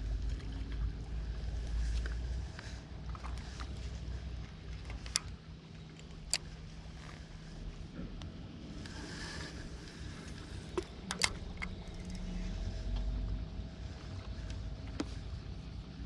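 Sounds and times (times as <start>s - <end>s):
engine humming: 0.0s - 16.0s
sharp clicks: 10.8s - 12.3s.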